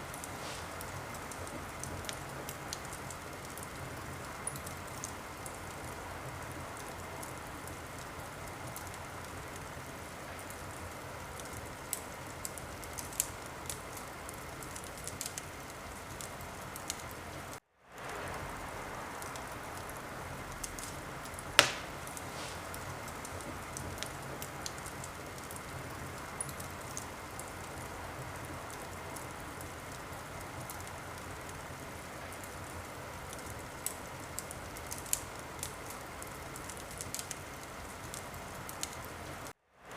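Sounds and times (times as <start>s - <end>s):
wood fire crackling: 0.0s - 39.9s
sharp loud crack of fire: 18.0s - 25.6s.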